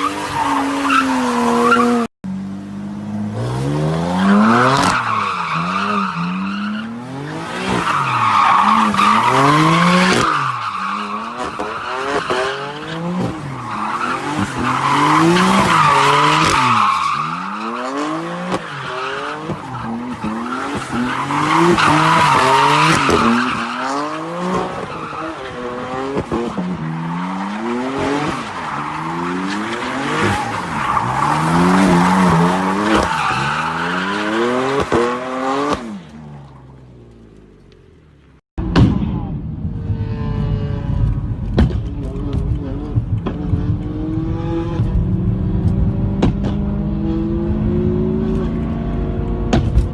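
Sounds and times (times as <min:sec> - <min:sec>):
car engine revving: 0:38.6 - 0:49.9.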